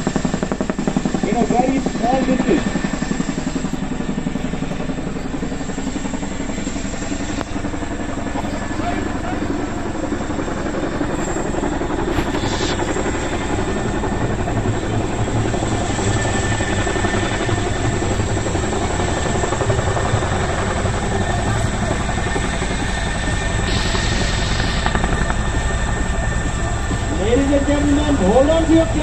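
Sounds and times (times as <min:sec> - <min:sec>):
helicopter rotor beat: 0:00.0 - 0:29.0.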